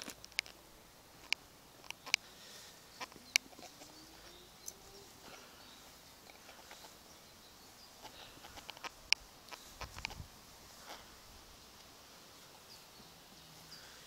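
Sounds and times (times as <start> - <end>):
quiet garden ambience: 0.0 - 14.0
bird chirps: 1.8 - 8.8
faint rising hum: 2.5 - 8.4.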